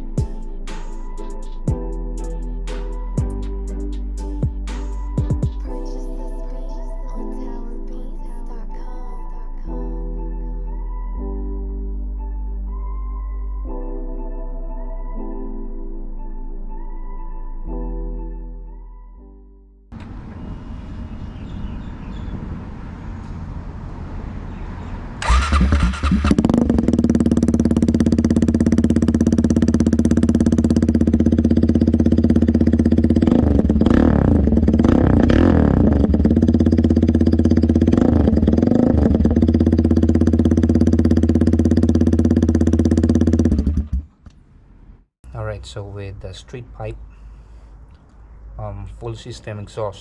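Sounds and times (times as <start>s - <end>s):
loud motorcycle engine running: 25.2s - 44.1s
person speaking: 45.2s - 47.1s, 48.6s - 50.0s.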